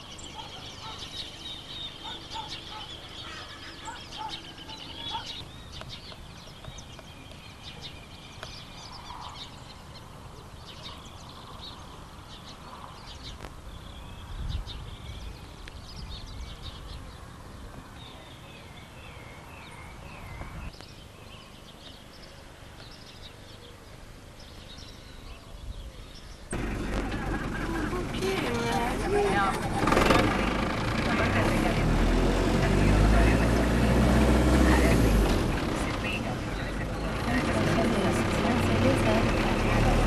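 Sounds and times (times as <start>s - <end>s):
wavering bird calls: 0.0s - 13.5s
small birds chirping: 0.0s - 40.0s
wind rumble on microphone: 13.1s - 18.2s, 19.9s - 20.9s.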